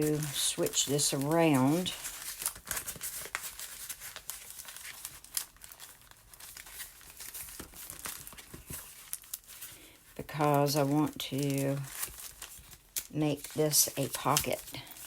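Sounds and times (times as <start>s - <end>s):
small clicks of paper sheets: 0.0s - 9.8s
paper rustling and crinkling: 0.0s - 15.0s.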